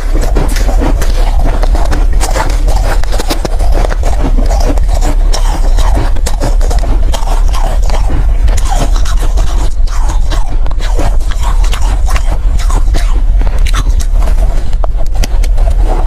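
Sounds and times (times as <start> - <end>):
crunching and chewing ice: 0.0 - 16.0.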